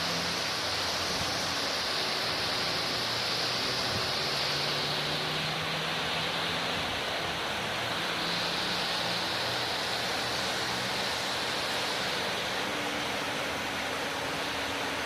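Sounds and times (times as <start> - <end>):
heavy rain downpour: 0.0 - 15.0
rushing storm water: 0.0 - 15.0.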